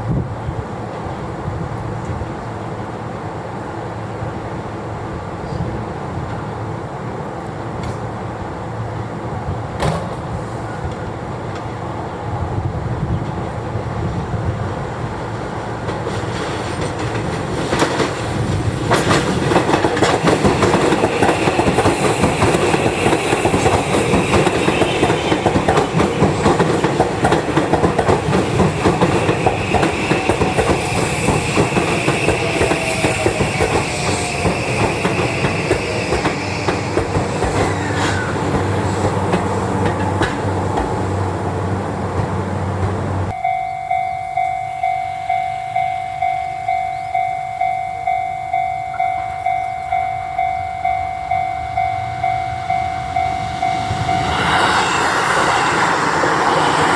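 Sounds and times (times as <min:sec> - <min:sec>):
train wheels clattering over rail joints: 0:15.3 - 0:43.3.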